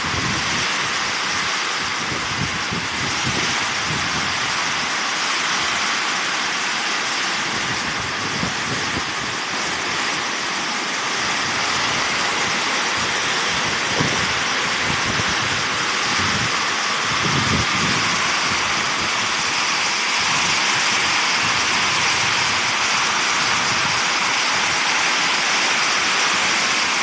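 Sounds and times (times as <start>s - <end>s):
wind gusts on microphone: 0.0s - 4.9s, 7.4s - 10.2s, 11.1s - 24.9s
heavy rain pouring: 0.0s - 27.0s.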